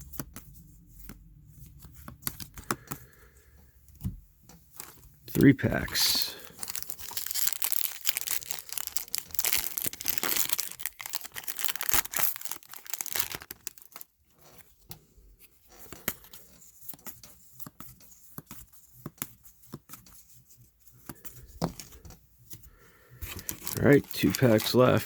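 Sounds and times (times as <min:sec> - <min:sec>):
cards clicking and rustling: 0:01.0 - 0:03.2, 0:04.8 - 0:14.6, 0:23.2 - 0:25.0
card pack wrapper tearing: 0:04.8 - 0:14.1, 0:23.2 - 0:25.0.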